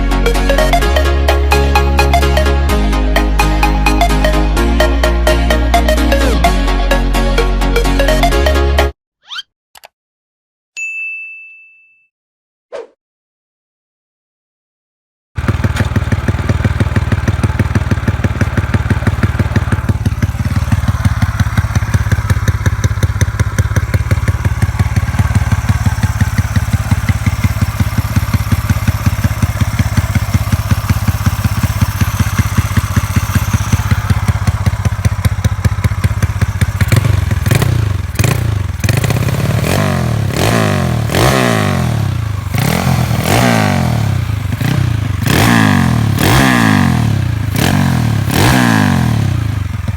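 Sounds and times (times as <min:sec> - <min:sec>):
motorcycle idling: 0:15.4 - 0:49.9
motorcycle throttle revving: 0:15.4 - 0:49.9.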